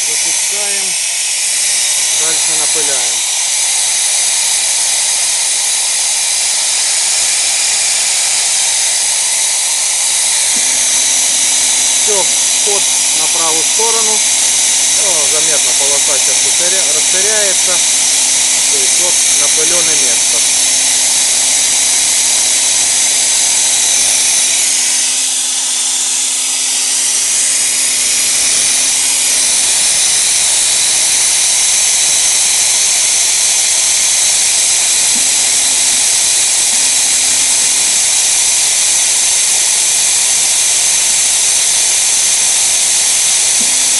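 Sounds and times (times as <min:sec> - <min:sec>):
spray gun hissing: 0:00.0 - 0:43.9.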